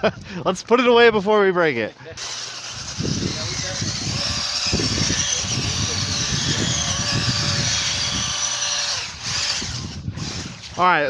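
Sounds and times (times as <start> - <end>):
electric motor whining: 2.2 - 11.0
tyres and chassis rattling: 2.2 - 11.0.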